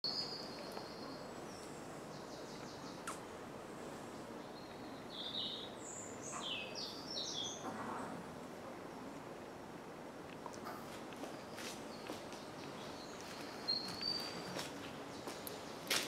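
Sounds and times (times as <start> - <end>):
birds chirping: 0.0 - 8.2, 10.6 - 16.0
sharp click: 3.0 - 3.2.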